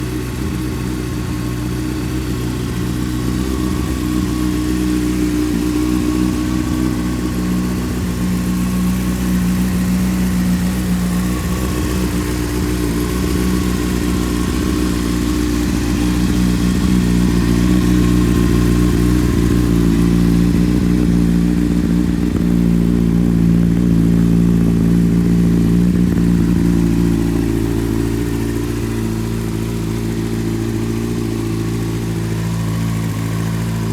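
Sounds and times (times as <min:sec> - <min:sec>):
motorcycle engine idling: 0:00.0 - 0:33.9.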